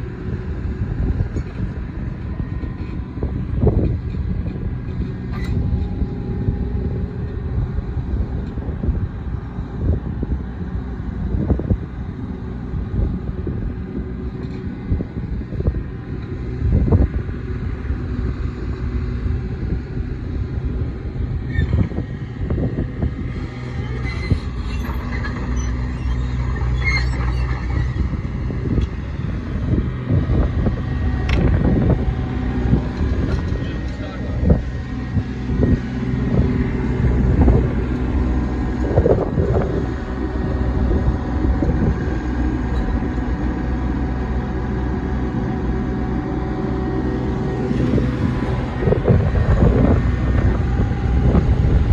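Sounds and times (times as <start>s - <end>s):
diesel engine running: 0.0s - 51.9s
high squeaks and clicks: 23.8s - 28.0s.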